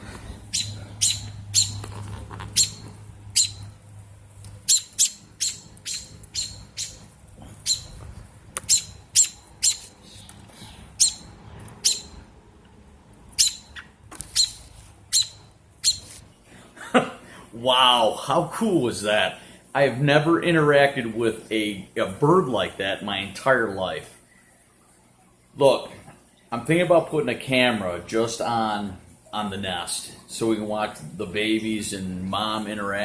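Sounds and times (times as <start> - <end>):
robin alarm calls: 0.5 - 1.8, 2.5 - 3.8, 4.6 - 8.0, 8.6 - 10.0, 10.9 - 12.2, 13.3 - 16.2.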